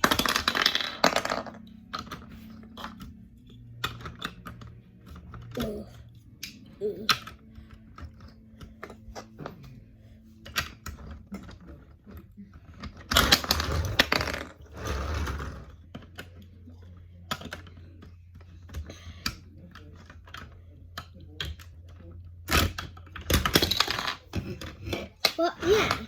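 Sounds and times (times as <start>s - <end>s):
hands sorting loose bricks: 0.0s - 3.2s
plastic bricks clicking: 0.0s - 5.7s.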